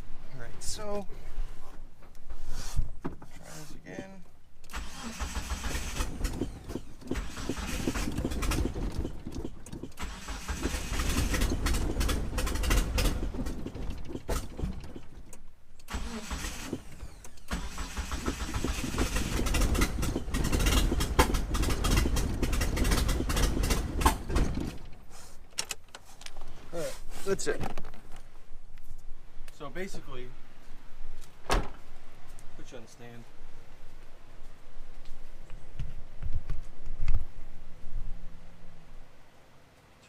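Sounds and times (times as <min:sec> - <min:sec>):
engine cranking on starter: 0:04.7 - 0:25.1.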